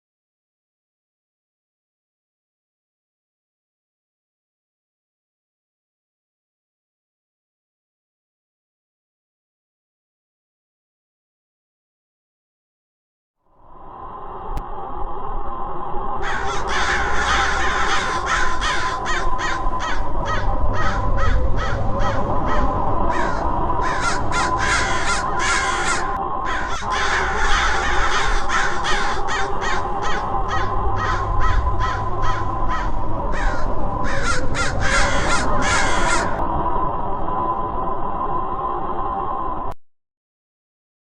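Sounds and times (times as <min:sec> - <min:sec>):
steady low hum: 0:13.5 - 0:39.8
crows cawing: 0:16.2 - 0:36.4.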